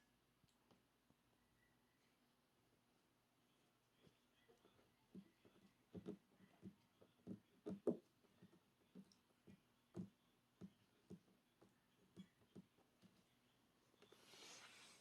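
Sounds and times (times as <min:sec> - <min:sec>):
soft taps and light thumps: 0:04.0 - 0:13.3.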